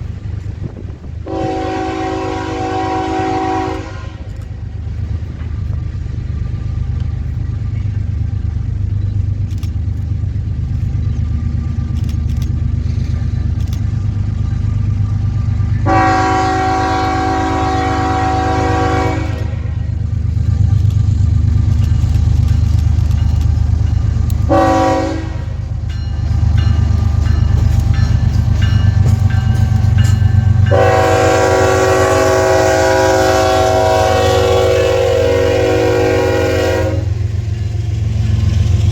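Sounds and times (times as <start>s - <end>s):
diesel locomotives rumbling: 0.0s - 38.9s
train air horn blasts: 1.2s - 4.4s, 15.8s - 19.8s, 24.5s - 25.6s, 30.6s - 37.2s.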